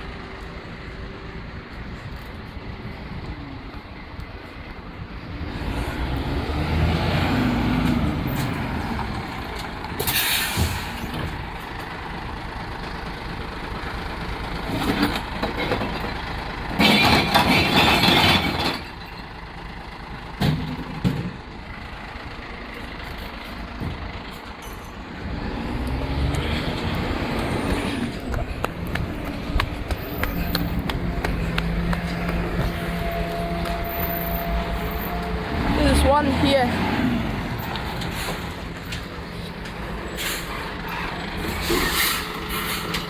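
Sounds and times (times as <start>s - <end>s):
truck engine revving: 5.3s - 9.7s, 25.0s - 43.0s
air brake hiss: 10.1s - 10.9s, 40.2s - 40.6s.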